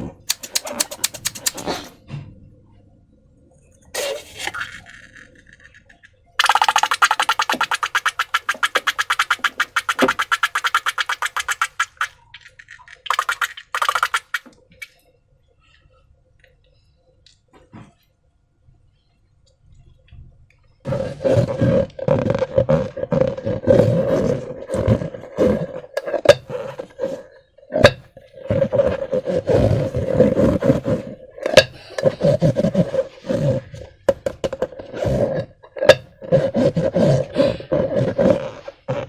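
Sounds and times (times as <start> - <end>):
sharp clicks: 0.3 - 1.6
slime squelching: 6.4 - 14.5, 20.9 - 34.0.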